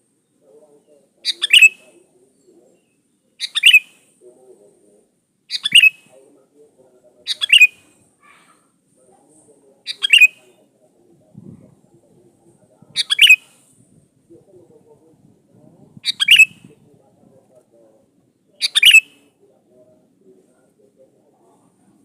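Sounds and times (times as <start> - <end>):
bird calling: 1.2 - 4.0, 5.5 - 6.1, 7.2 - 8.6, 9.8 - 10.6, 12.9 - 13.6, 16.0 - 16.7, 18.5 - 19.3.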